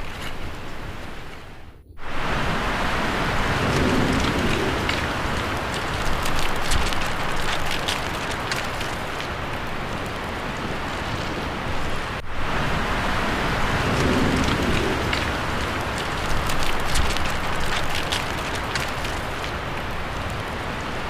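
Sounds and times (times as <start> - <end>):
wind rustling tree leaves: 0.0 - 21.0.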